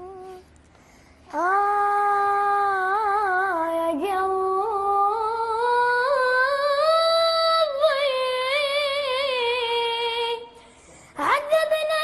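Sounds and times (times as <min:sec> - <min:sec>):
person singing with vibrato: 0:00.0 - 0:00.5.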